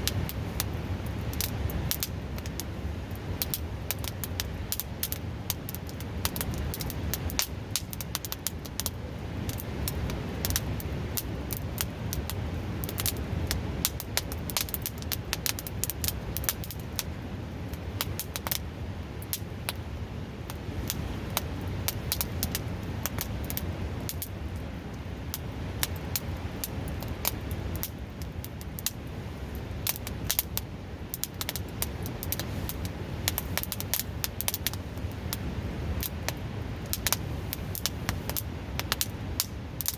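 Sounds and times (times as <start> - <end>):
wood fire crackling and popping: 0.0 - 39.9
river rushing: 29.0 - 39.9.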